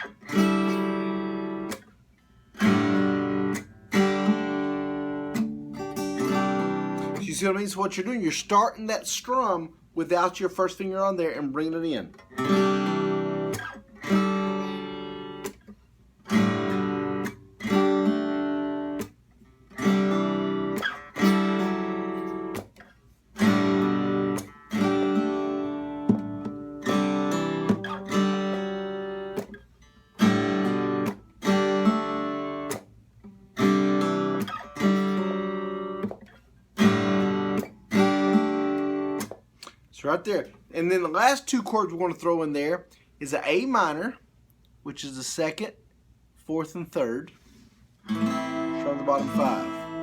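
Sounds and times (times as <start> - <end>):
acoustic guitar chords strummed: 0.0 - 8.1, 11.3 - 15.6, 16.2 - 22.8, 23.4 - 39.5, 48.0 - 50.0
guitar strings muted: 48.1 - 50.0.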